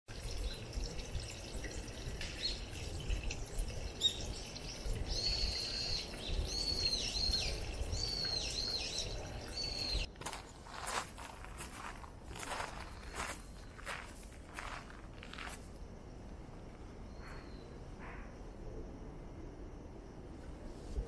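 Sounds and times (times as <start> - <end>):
water running into stone basin: 0.1 - 10.1
songbird singing: 0.2 - 15.6, 16.7 - 18.9.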